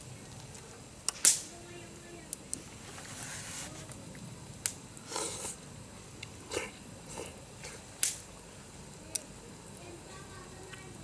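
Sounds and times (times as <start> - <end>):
campfire crackling: 0.0 - 11.0
rustle: 0.0 - 11.0
sharp fire pops: 0.4 - 1.6, 3.9 - 6.4, 7.6 - 8.4.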